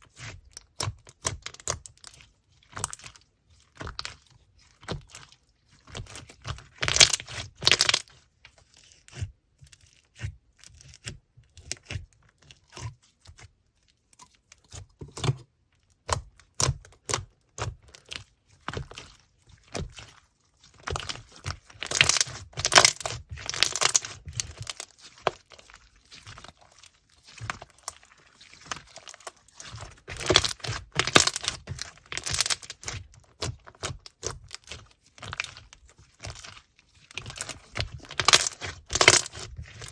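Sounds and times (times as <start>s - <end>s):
sticky clicks and crackling pops: 37.2s - 39.9s.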